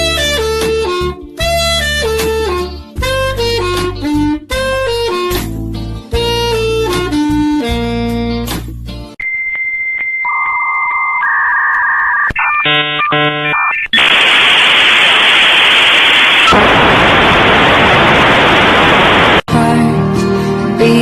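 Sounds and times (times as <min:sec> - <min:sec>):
electronic beep tones: 0:09.2 - 0:14.1
harsh buzzing tones: 0:11.2 - 0:19.4
loud static hiss: 0:13.3 - 0:19.5.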